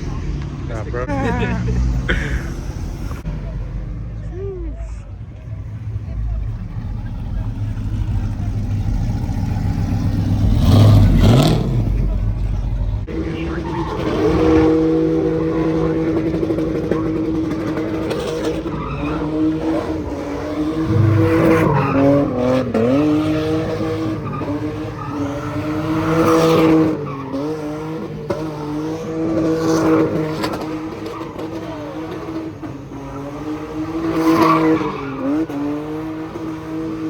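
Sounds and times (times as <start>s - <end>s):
car engine at high revs: 0.0s - 4.2s, 5.7s - 37.0s
tyres skidding: 0.0s - 37.0s.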